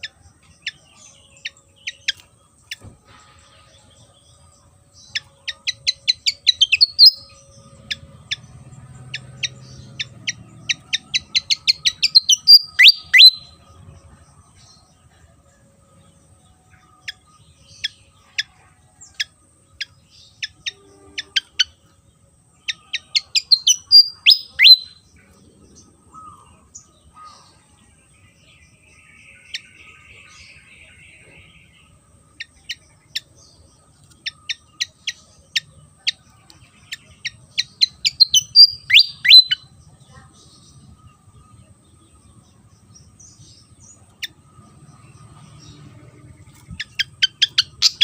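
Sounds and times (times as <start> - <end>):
bird singing high notes: 5.0 - 13.6, 22.7 - 25.0, 37.6 - 39.8.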